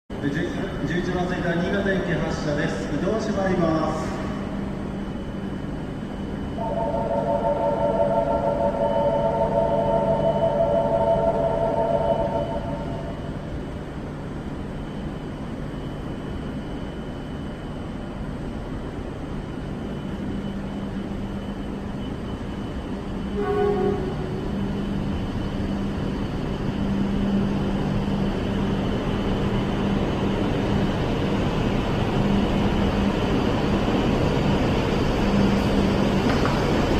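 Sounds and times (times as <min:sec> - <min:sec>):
rumble of train pulling away: 0:00.1 - 0:36.9
train electrical hum: 0:00.1 - 0:36.9
train horn blast: 0:06.6 - 0:09.9, 0:23.3 - 0:24.6.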